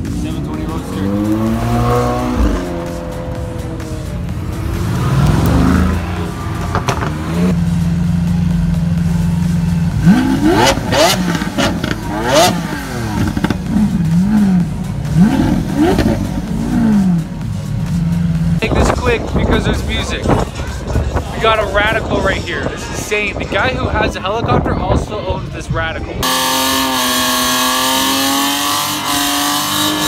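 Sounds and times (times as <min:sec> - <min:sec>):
sports car pulling away: 0:00.0 - 0:18.9, 0:26.2 - 0:30.0
car engine idling and revving: 0:00.0 - 0:24.6, 0:25.5 - 0:30.0.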